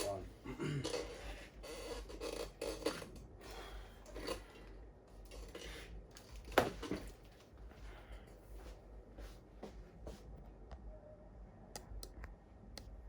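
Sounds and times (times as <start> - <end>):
laptop parts scraping and clicking: 0.9 - 3.5.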